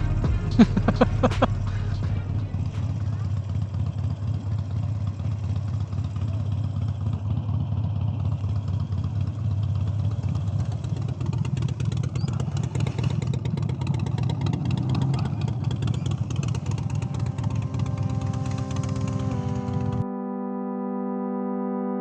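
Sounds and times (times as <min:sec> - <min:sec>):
music: 0:00.0 - 0:03.4, 0:16.7 - 0:22.0
motorcycle engine running: 0:00.0 - 0:20.0.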